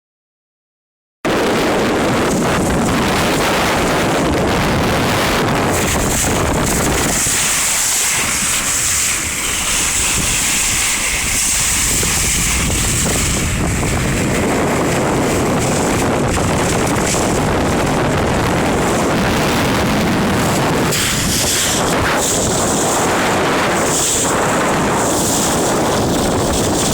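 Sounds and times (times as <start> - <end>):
wind buffeting microphone: 1.2 - 26.9
water splashing past hull: 1.3 - 26.9.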